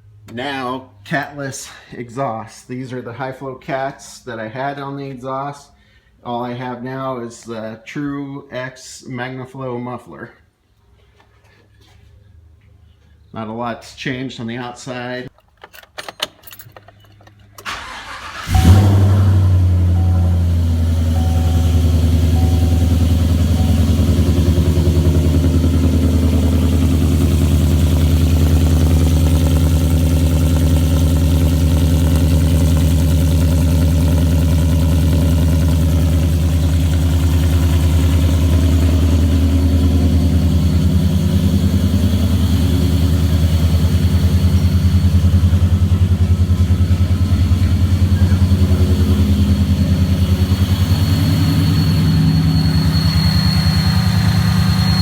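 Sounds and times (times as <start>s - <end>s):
truck engine idling: 17.7s - 55.0s.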